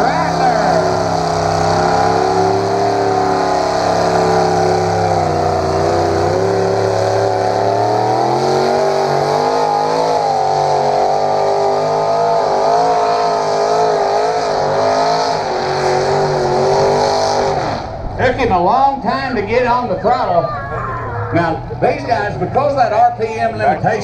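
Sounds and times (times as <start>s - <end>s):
tractor engine running hard: 0.0s - 18.2s.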